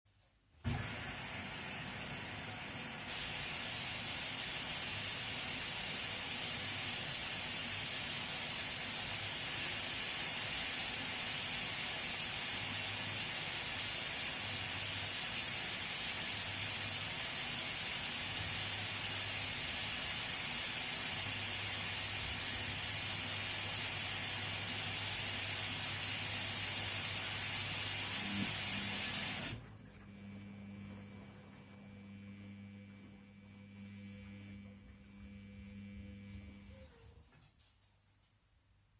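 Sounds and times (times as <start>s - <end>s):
water spraying into washing machine: 0.6s - 30.1s.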